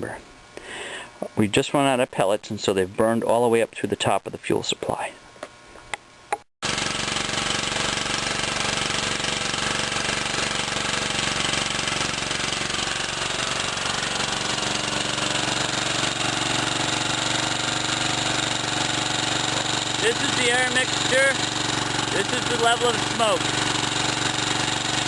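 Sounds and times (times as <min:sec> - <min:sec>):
small engine running: 0:06.6 - 0:25.0.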